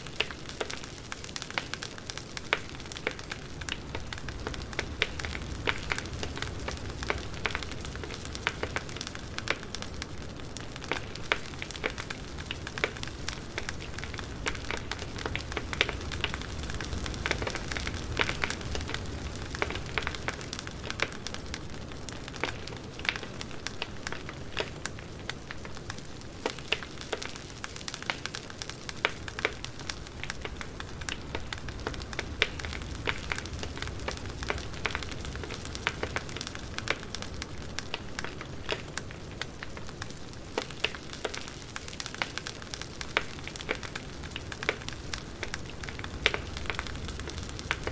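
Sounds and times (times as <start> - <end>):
campfire crackling and popping: 0.0 - 47.9
low rumble of flames: 0.0 - 47.9.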